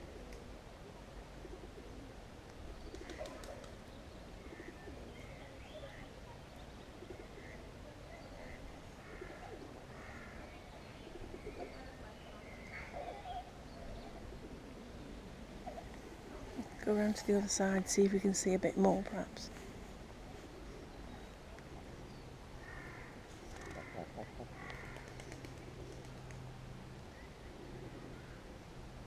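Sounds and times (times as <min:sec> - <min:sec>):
steady background hum: 0:06.9 - 0:29.0
birds chirping: 0:20.3 - 0:25.9
lower bird calls: 0:20.5 - 0:26.0.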